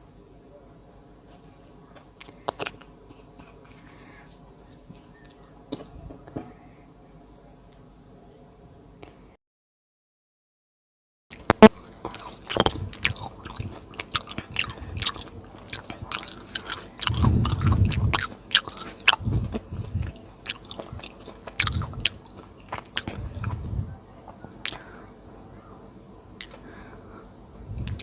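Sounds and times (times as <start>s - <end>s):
chewing soft food: 2.1s - 5.5s, 11.3s - 25.0s, 26.1s - 27.1s, 27.8s - 28.0s
wet mouth clicks and smacks: 11.4s - 23.6s.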